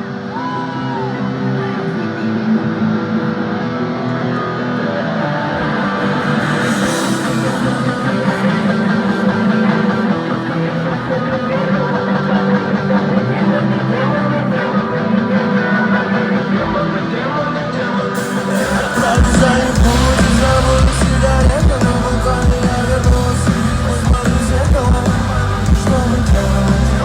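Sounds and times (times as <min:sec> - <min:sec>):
guitar: 0:00.0 - 0:27.0
live rock band: 0:00.0 - 0:27.0
deep bass: 0:02.8 - 0:11.8, 0:18.4 - 0:27.0.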